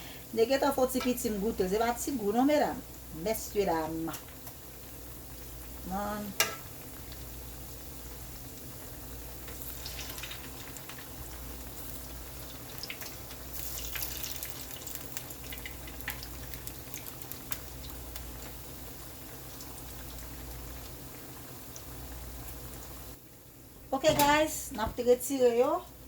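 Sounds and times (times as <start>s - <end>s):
food sizzling in hot oil: 1.3s - 23.2s
oil pops and crackles: 9.4s - 18.6s.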